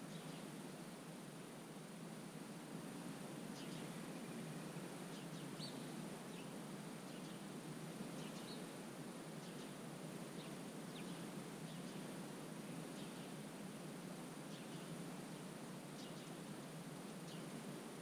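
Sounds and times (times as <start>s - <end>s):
small birds chirping: 0.1s - 0.5s, 3.6s - 7.4s, 8.1s - 8.7s, 9.4s - 12.1s, 12.8s - 13.4s, 14.5s - 15.0s, 16.0s - 16.5s, 17.2s - 17.6s.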